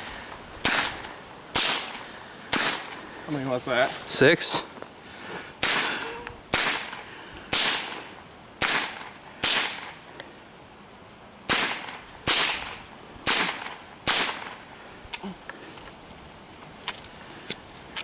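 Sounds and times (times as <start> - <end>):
rifle shots echoing: 0.6 - 3.0, 6.5 - 8.0, 8.6 - 10.0, 11.5 - 14.6.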